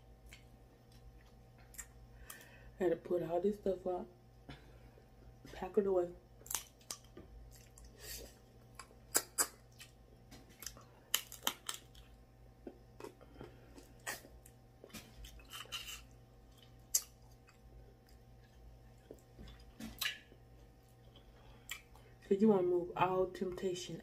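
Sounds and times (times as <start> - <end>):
person chewing: 0.2 - 2.5, 6.4 - 22.2
sharp mouth clicks: 8.8 - 9.6.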